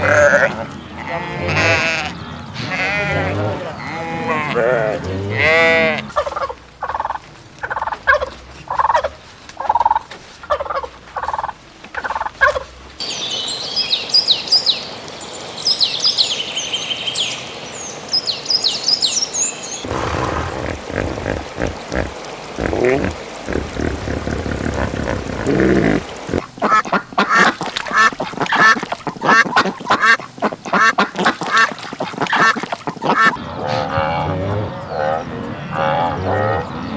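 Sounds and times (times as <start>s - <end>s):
lower busy animal calls: 0.0s - 6.2s, 19.8s - 26.4s, 33.0s - 36.9s
high chirping birdsong: 13.0s - 26.4s
short repeated animal calls: 19.8s - 26.4s.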